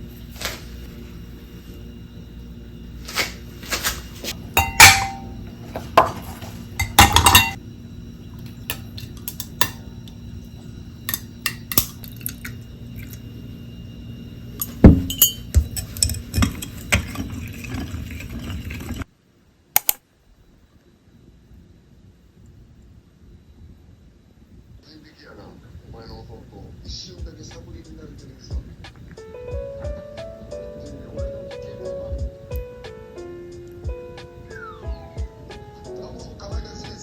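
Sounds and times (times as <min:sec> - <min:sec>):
steady low hum: 0:00.0 - 0:37.0
dishes and cutlery clinking: 0:04.6 - 0:07.6, 0:08.7 - 0:09.8, 0:11.1 - 0:12.3, 0:14.6 - 0:19.0.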